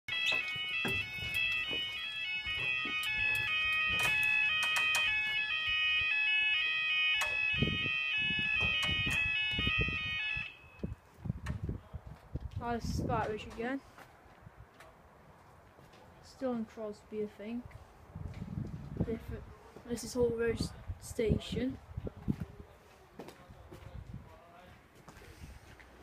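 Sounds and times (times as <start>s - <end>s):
clicks: 2.6s - 5.1s.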